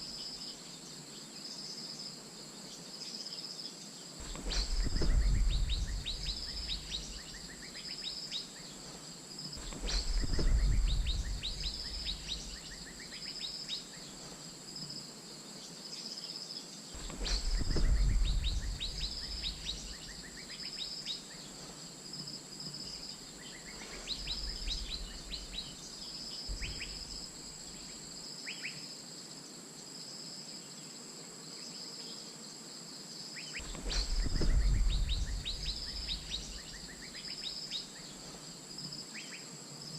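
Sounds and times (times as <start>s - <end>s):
steady high-pitched whine: 0.0s - 30.2s, 33.2s - 39.9s
low rumble: 4.3s - 7.5s, 9.6s - 12.8s, 17.0s - 20.3s, 26.5s - 27.4s, 33.7s - 36.9s.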